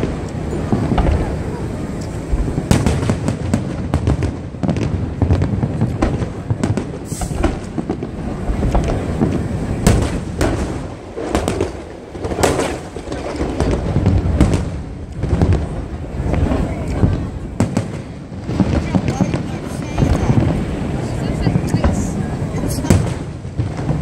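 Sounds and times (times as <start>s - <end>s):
fireworks bursting: 0.0s - 24.0s
low rumble of barrage: 0.0s - 24.0s.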